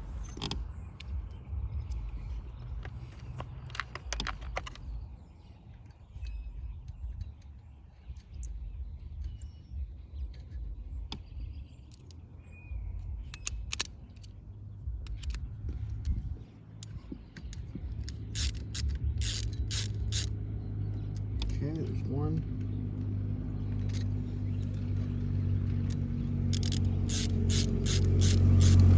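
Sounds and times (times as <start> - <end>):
steady low rumble: 0.0 - 28.9
small metal tools clicking: 11.8 - 12.2, 13.0 - 14.4, 15.0 - 16.2, 16.8 - 20.3, 23.8 - 24.9, 25.8 - 28.9.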